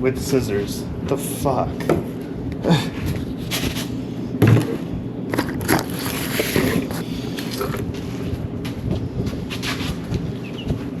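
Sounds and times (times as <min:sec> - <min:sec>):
objects scraping and knocking: 0:03.4 - 0:07.9.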